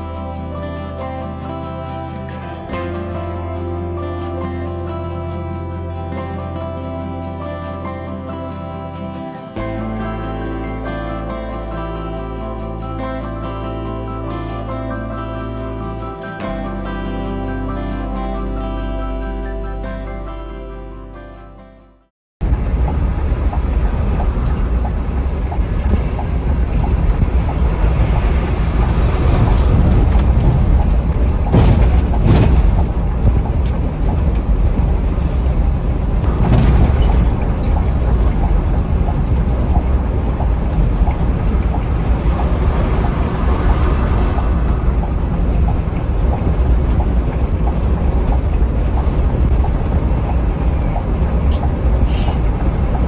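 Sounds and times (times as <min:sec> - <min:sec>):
coach engine and road rumble: 0:22.4 - 0:53.0.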